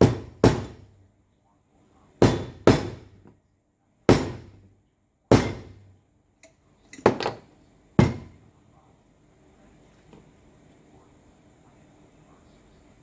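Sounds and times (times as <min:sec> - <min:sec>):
hammer striking metal: 0:00.0 - 0:00.8, 0:02.2 - 0:03.2, 0:04.1 - 0:04.6, 0:05.3 - 0:05.8, 0:08.0 - 0:08.4.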